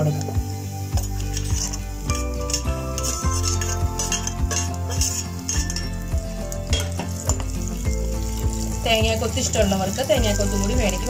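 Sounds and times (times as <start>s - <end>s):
nuts sizzling in hot fat: 0.0s - 11.0s
metal spoon scraping and clinking: 1.0s - 8.0s.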